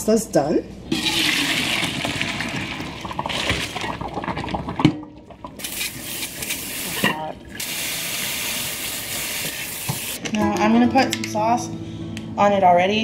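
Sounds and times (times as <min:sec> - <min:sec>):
tap running: 0:09.3 - 0:10.1.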